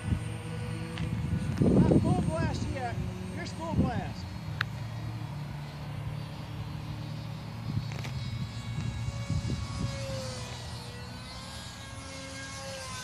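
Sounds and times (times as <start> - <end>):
wind on microphone: 0.0 - 4.2, 7.3 - 11.9
model plane motor whine: 0.0 - 13.0.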